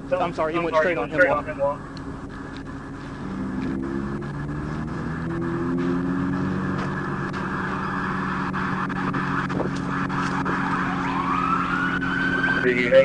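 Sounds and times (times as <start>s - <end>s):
car engine running: 0.0s - 13.0s
police siren wailing: 3.2s - 13.0s.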